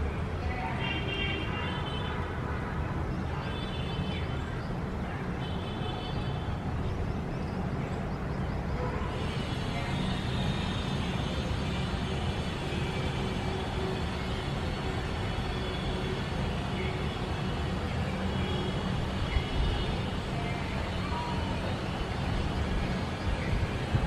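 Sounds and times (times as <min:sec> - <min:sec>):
traffic noise: 0:00.0 - 0:24.0
hiss: 0:09.1 - 0:13.1.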